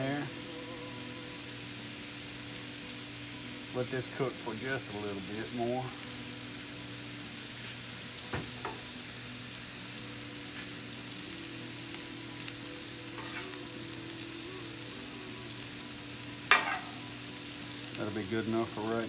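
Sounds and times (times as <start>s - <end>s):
onions sizzling on a griddle: 0.0s - 19.0s.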